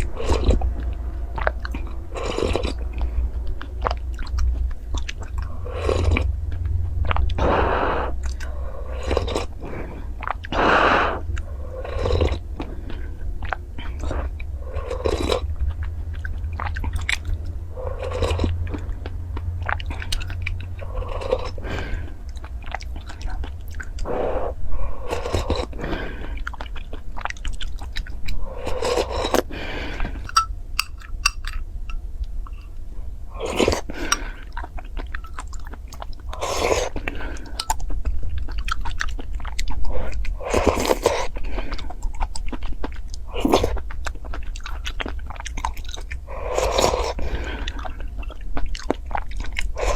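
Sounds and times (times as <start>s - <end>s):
low hum: 0.0s - 26.6s, 27.6s - 38.2s
chewing food: 0.0s - 49.9s.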